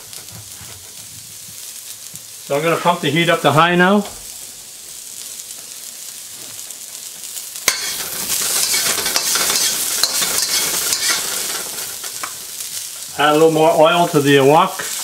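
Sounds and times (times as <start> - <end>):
garlic sizzling in hot oil: 0.0 - 15.0
metal spatula knocking and scraping wok: 7.7 - 11.4.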